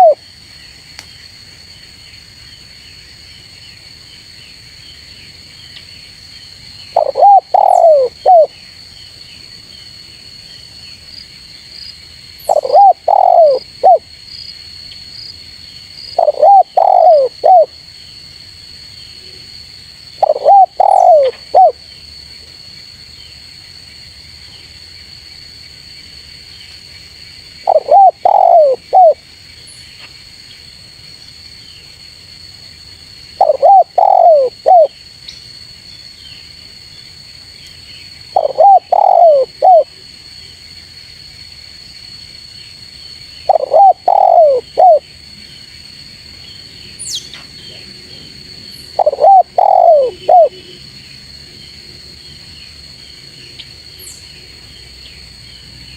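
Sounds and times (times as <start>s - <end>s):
dove cooing: 0.0s - 0.2s, 7.0s - 8.5s, 12.5s - 14.0s, 16.2s - 17.7s, 20.2s - 21.8s, 27.6s - 29.2s, 33.4s - 34.9s, 38.4s - 39.9s, 43.5s - 45.0s, 48.9s - 50.8s.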